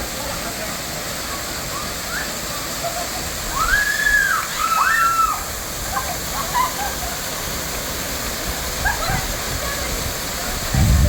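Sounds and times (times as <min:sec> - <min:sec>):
rushing falling water: 0:00.0 - 0:11.0.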